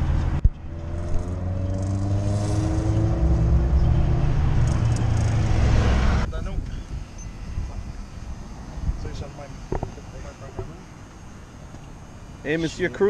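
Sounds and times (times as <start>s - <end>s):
car engine running: 0.3s - 6.3s.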